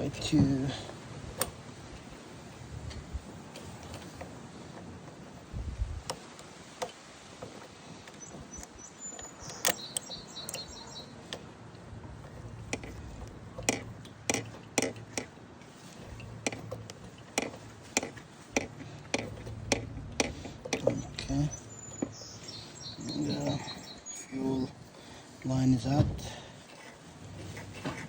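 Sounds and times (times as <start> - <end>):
hand tools clicking and knocking: 0.0 - 28.0.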